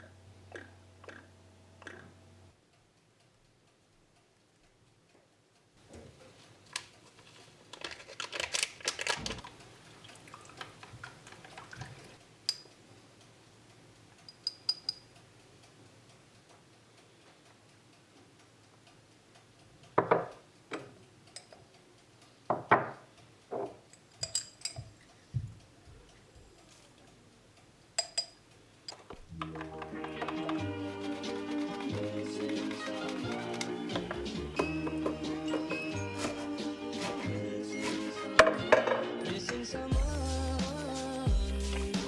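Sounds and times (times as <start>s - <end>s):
light ringing clinks: 14.2s - 15.2s, 23.9s - 24.9s, 28.0s - 29.1s
dishes and utensils clattering: 22.5s - 25.0s, 28.0s - 39.2s.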